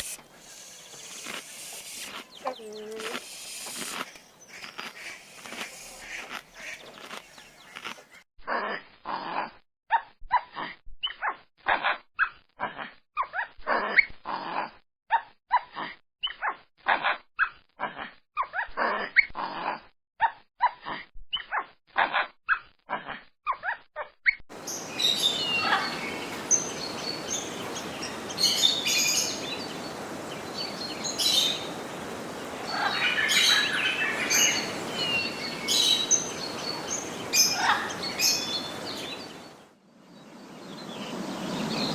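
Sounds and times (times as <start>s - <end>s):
birds chirping: 0.3s - 8.2s, 24.5s - 41.9s
steady background hiss: 24.6s - 41.9s.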